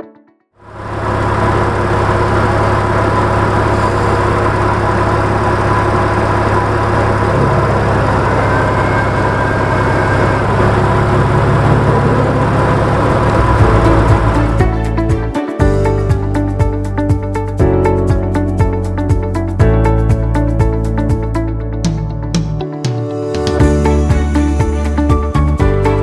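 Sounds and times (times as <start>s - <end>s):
car engine idling: 0.6s - 21.4s.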